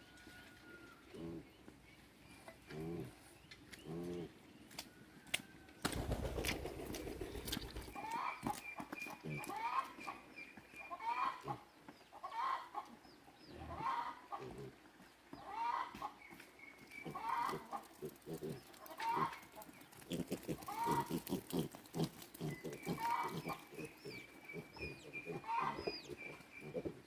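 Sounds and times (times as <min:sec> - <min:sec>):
chicken clucking: 0:07.7 - 0:13.0, 0:15.3 - 0:16.2, 0:17.2 - 0:21.3, 0:22.5 - 0:27.0
chicken calling: 0:20.1 - 0:21.5, 0:22.5 - 0:27.0.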